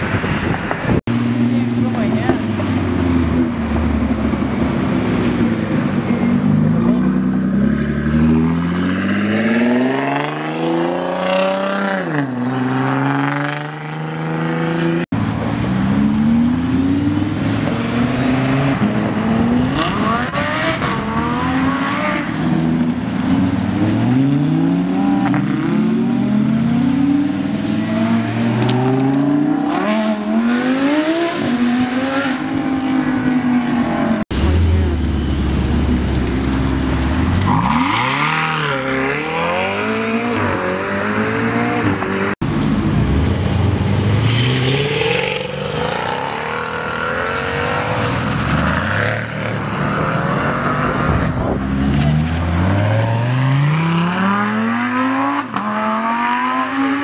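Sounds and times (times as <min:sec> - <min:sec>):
car engines accelerating hard: 0:00.0 - 0:57.0.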